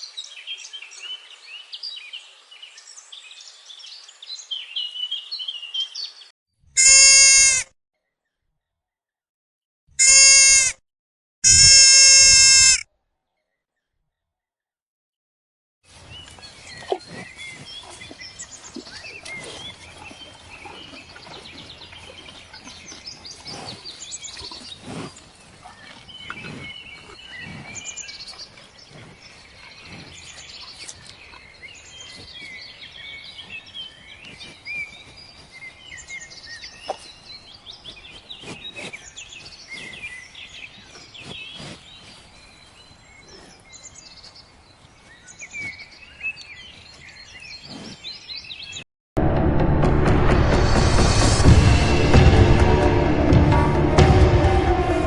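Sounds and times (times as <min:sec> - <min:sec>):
small birds chirping: 0:15.9 - 0:48.9.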